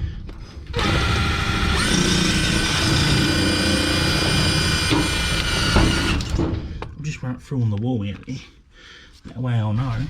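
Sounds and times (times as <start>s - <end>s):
power drill driving screw into metal: 0.8s - 6.4s.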